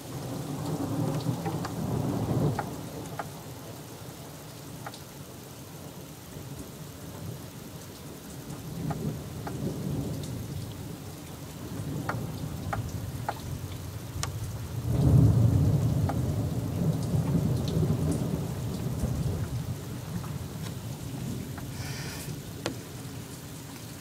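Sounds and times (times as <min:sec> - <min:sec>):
heavy rain: 0:00.0 - 0:24.0
raindrops ticking close by: 0:00.0 - 0:24.0
thunder rumbling: 0:08.8 - 0:23.3.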